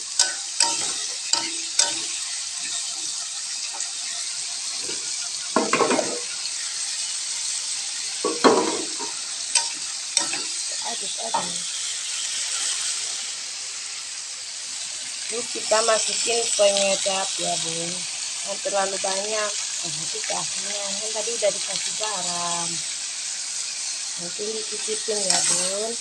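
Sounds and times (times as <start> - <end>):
metal spatula scraping a pan: 0.0 - 13.3, 23.6 - 26.0
food sizzling in a wok: 0.0 - 26.0.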